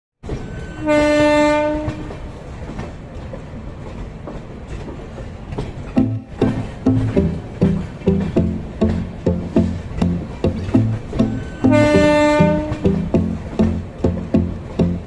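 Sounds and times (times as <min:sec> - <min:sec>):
train coaches rumbling over rails: 0:00.2 - 0:15.0
train horn blast: 0:00.8 - 0:02.1, 0:11.5 - 0:12.9
plucked string music: 0:06.0 - 0:15.0.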